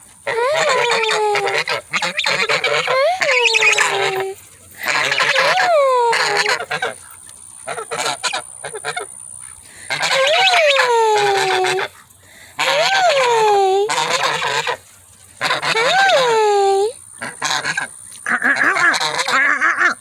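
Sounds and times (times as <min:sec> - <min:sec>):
geese honking: 0:00.2 - 0:07.0, 0:07.7 - 0:09.1, 0:09.9 - 0:12.0, 0:12.6 - 0:13.0, 0:13.9 - 0:14.8, 0:15.4 - 0:16.3, 0:17.4 - 0:20.0.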